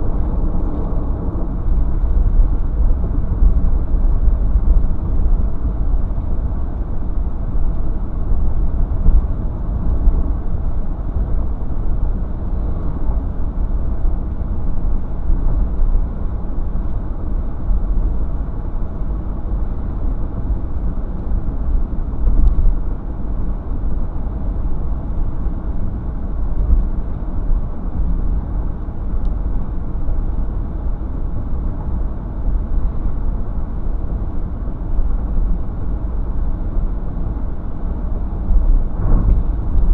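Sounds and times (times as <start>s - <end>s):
car driving: 38.6s - 39.9s.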